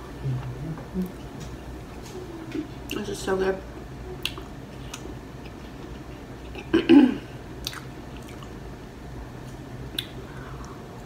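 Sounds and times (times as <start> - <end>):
chewing with wet mouth clicks: 4.2 - 6.2, 7.6 - 8.6, 9.9 - 10.8.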